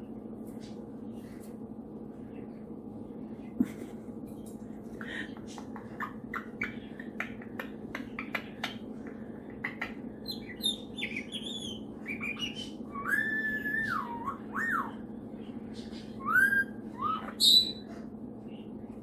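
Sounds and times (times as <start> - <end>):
parrot clicks and chirps: 5.6 - 12.7
parrot whistling: 10.2 - 15.0, 16.2 - 17.9.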